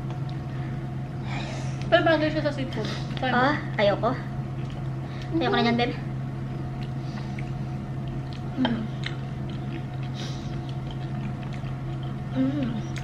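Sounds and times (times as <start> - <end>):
steady low hum: 0.0 - 13.0
chewing and wet mouth noises: 4.4 - 5.3, 6.5 - 13.0.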